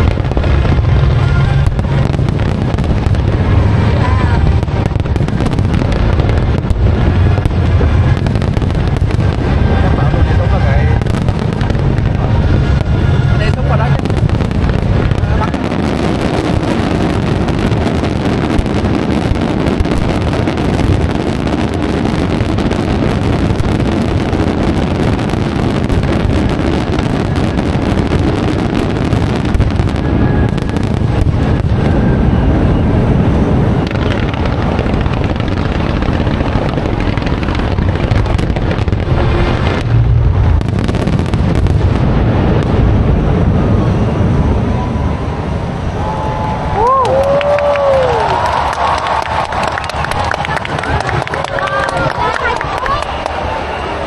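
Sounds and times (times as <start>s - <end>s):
fireworks booming and crackling: 0.0s - 54.0s.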